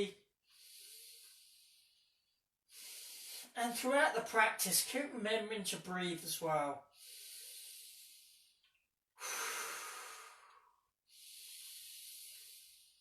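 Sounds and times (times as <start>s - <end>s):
man breathing deeply: 0.4s - 3.5s, 6.9s - 13.0s.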